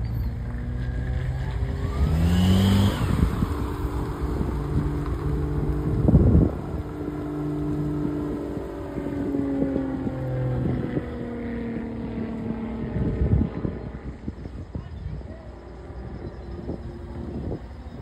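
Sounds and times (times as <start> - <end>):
engine drone passing: 0.0 - 18.0
wind gust on microphone: 1.6 - 18.0.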